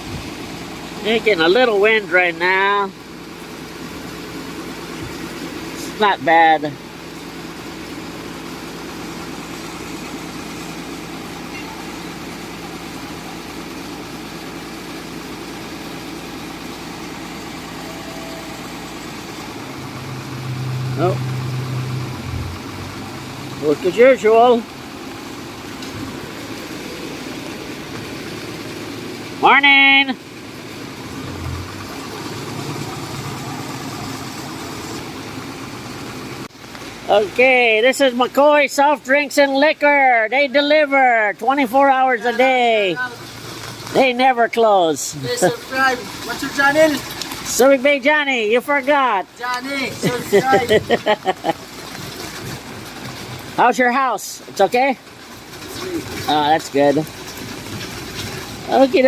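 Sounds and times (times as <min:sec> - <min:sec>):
wash of noise: 0:00.0 - 0:38.4, 0:41.4 - 0:59.0
vehicle engine humming: 0:00.0 - 0:59.0
heavy rain: 0:24.6 - 0:37.7, 0:49.6 - 0:53.9.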